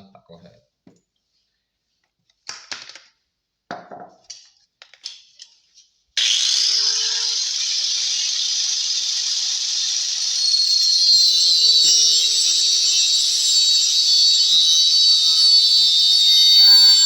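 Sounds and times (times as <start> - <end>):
electric power tool cutting wood: 6.2 - 17.0.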